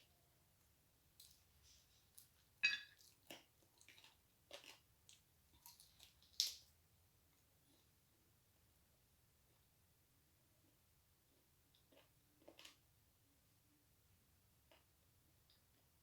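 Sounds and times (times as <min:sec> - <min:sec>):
person chewing: 0:02.1 - 0:06.6.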